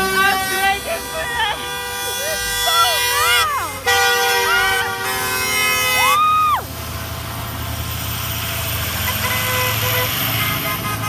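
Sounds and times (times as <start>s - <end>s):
truck passing with low rumble: 0.0s - 11.0s
high-pitched whoop: 6.0s - 6.7s.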